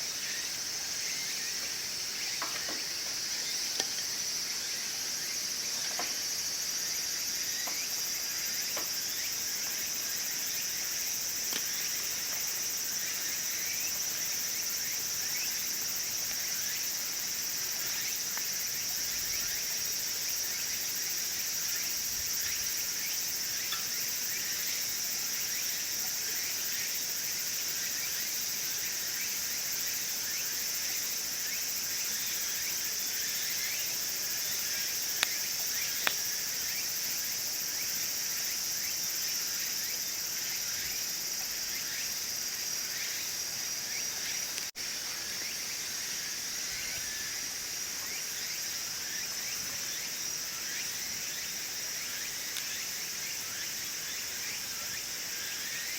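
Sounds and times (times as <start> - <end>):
insects trilling: 0.0 - 55.9
sharp snaps: 36.0 - 36.3.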